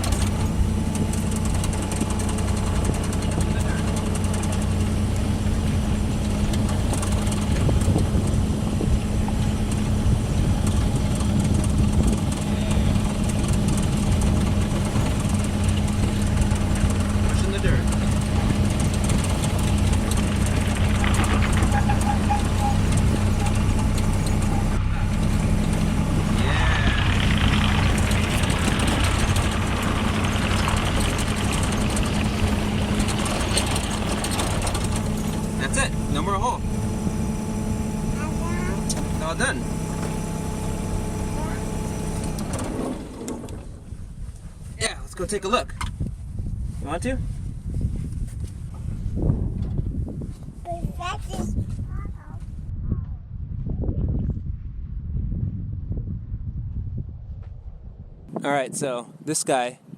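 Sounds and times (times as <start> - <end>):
small machine engine humming: 0.0 - 43.8.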